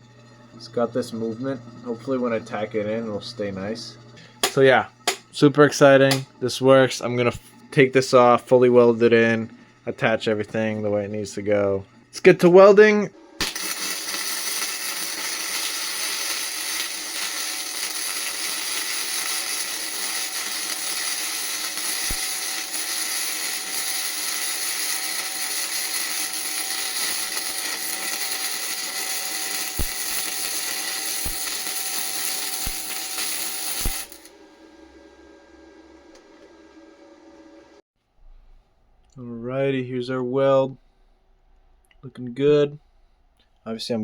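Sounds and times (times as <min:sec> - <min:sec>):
welder arc crackling and hissing: 0:00.0 - 0:37.8
sharp pops: 0:04.4 - 0:05.3, 0:06.1 - 0:06.3.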